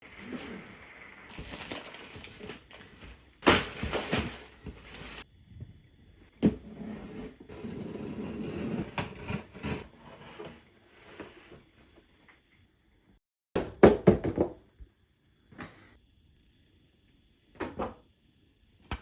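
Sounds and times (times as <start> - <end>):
packaging rustling and scraping: 1.3 - 5.2.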